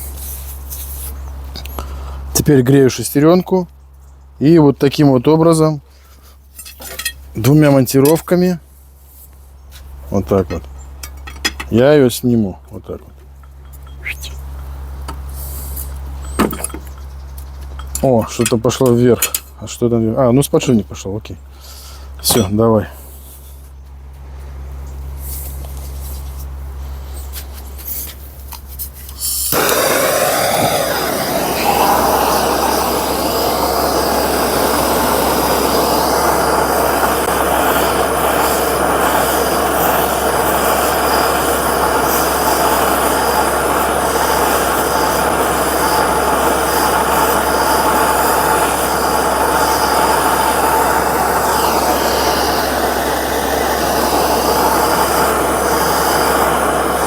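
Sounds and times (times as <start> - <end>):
heating tool hissing: 29.2 - 57.0.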